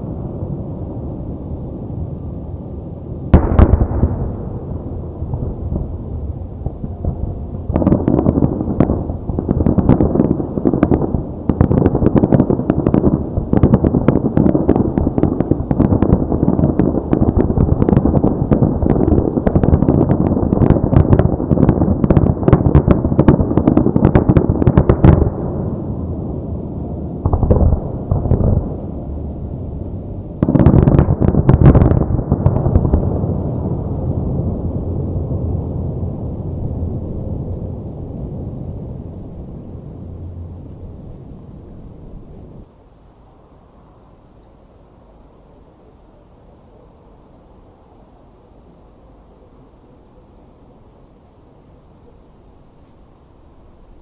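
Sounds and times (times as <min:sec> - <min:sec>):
firework crackling pops: 0:03.3 - 0:25.9, 0:27.2 - 0:29.0, 0:30.4 - 0:34.6.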